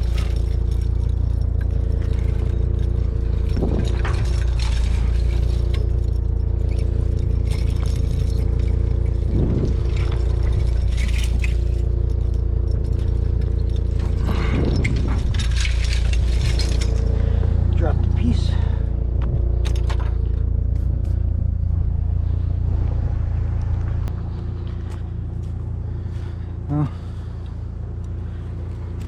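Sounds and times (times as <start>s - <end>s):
metal clinks and scrapes: 0.0s - 22.7s
low engine drone: 0.0s - 29.0s.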